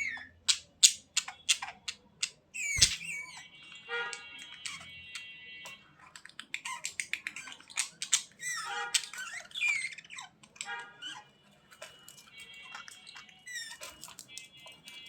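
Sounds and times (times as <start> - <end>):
budgerigars chattering: 0.0 - 3.4.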